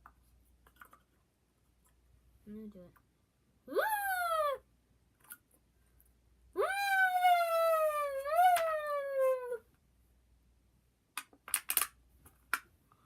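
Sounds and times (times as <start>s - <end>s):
can noisemaker high wail: 6.6s - 9.6s.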